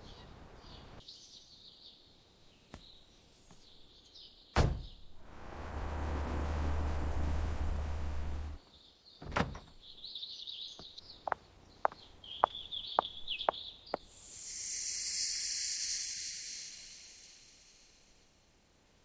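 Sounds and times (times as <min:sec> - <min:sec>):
high chirping: 0:10.8 - 0:18.1
high hiss: 0:14.0 - 0:19.0.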